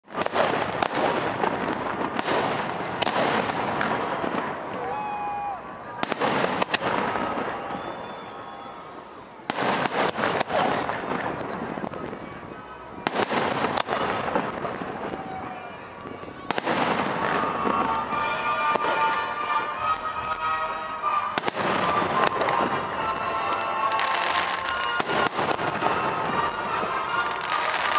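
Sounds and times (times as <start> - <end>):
fireworks crackle: 0.0 - 27.9
firework shells bursting: 0.1 - 5.0, 13.0 - 27.9.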